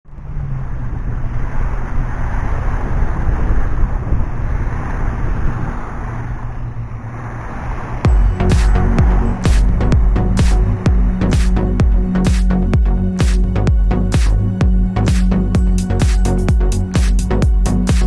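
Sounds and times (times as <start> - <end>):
wind buffeting microphone: 0.4 - 17.9
electronic music: 8.0 - 18.0.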